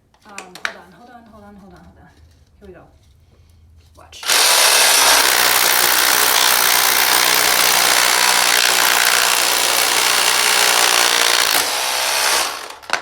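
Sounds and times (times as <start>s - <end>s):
hammer drill boring into concrete: 4.2s - 13.0s.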